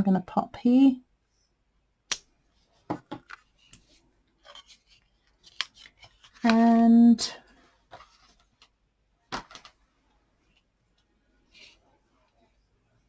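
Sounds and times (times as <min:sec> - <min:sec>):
person speaking: 0:00.0 - 0:01.0, 0:06.4 - 0:07.4.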